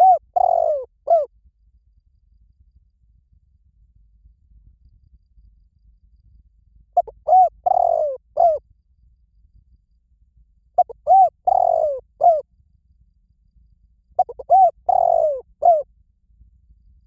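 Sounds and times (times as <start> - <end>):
dove cooing: 0.0 - 1.3, 7.0 - 8.6, 10.8 - 12.4, 14.2 - 15.8.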